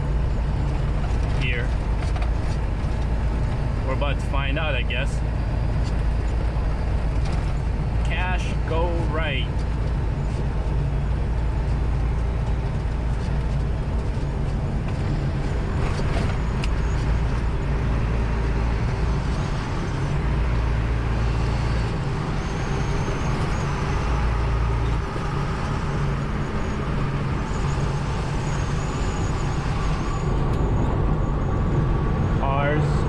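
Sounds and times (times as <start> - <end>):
truck engine and road noise: 0.0 - 33.0.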